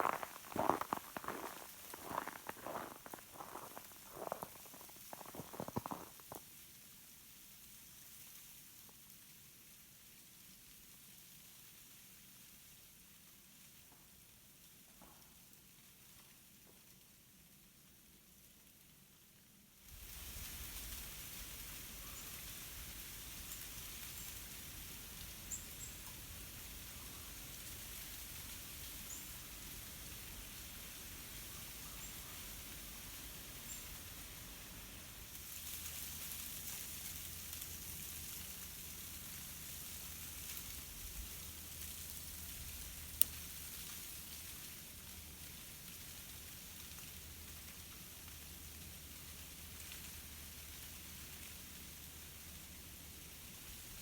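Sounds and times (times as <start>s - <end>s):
ice-coated branches crackling: 0.0s - 6.8s, 20.0s - 51.8s.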